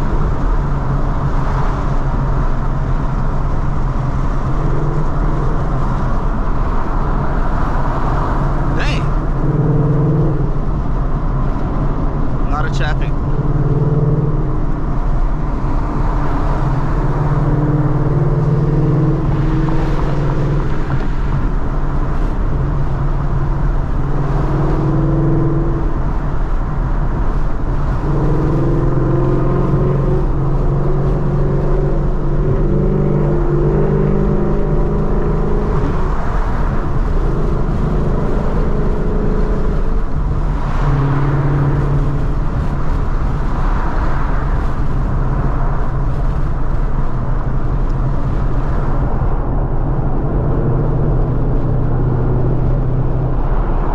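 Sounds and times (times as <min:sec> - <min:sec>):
car engine and exhaust droning: 0:00.0 - 0:53.9.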